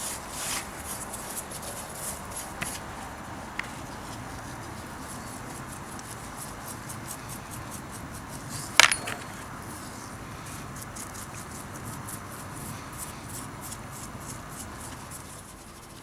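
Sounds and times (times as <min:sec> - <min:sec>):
faint scratching strokes: 0:00.0 - 0:16.0
sharp metallic clink: 0:08.8 - 0:09.4.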